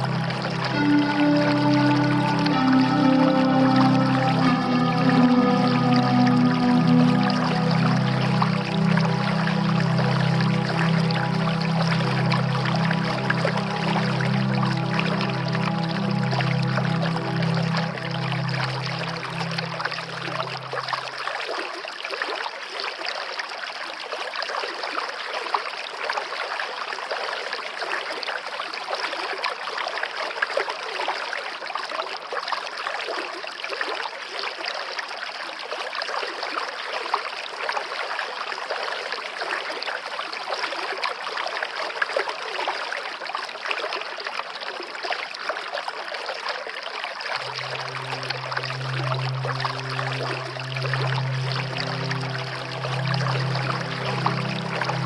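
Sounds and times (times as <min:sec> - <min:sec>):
waterfall rushing: 0:00.0 - 0:21.2, 0:47.4 - 0:55.0
low sustained music tone: 0:00.0 - 0:21.6, 0:47.3 - 0:55.0.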